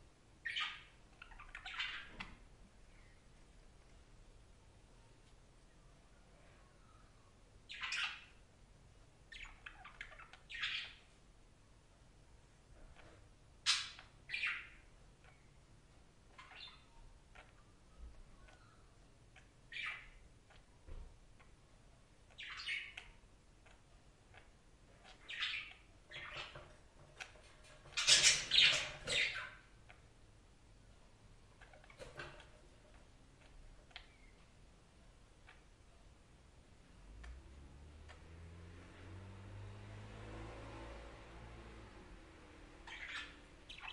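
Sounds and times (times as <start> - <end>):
budgerigar chirping and squawking: 0.4 - 2.2, 7.7 - 8.4, 9.3 - 11.0, 13.0 - 15.5, 16.3 - 17.6, 19.4 - 20.6, 22.3 - 26.6, 27.2 - 30.0, 42.8 - 43.9
budgerigar chirps: 19.4 - 20.2, 24.4 - 26.5, 42.8 - 43.9.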